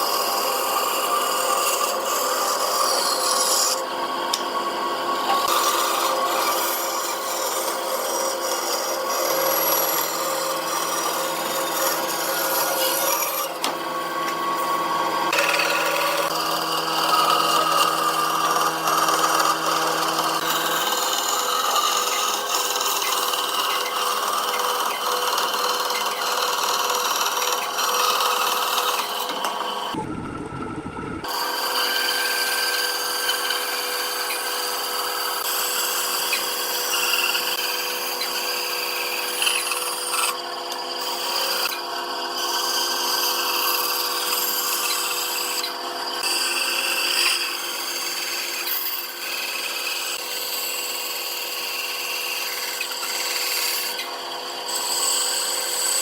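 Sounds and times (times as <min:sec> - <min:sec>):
power tool cutting wood: 0:00.0 - 0:30.1, 0:31.2 - 0:56.0.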